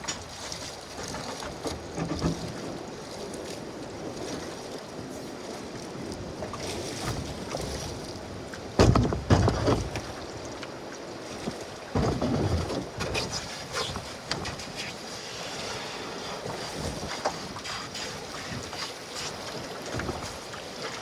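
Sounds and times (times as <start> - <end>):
canoe bumps: 0.0 - 2.9, 6.9 - 10.6, 11.3 - 14.8, 19.8 - 20.5
wind: 0.0 - 21.0.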